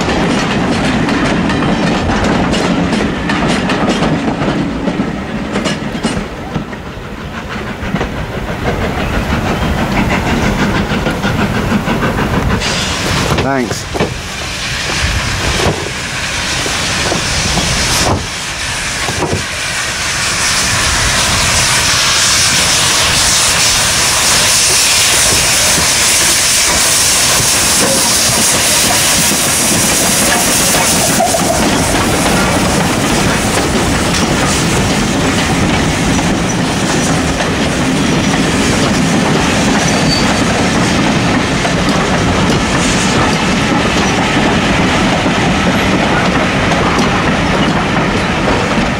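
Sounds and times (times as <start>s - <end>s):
clickety-clack of carriage wheels: 0.0s - 14.2s, 24.6s - 48.9s
steam train running on rails: 0.0s - 48.9s
hiss of steam: 6.8s - 48.9s.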